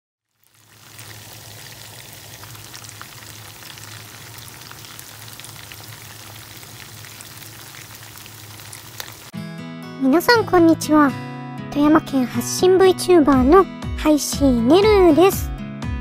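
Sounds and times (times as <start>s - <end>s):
chicken frying with crackling pops: 0.2s - 9.3s.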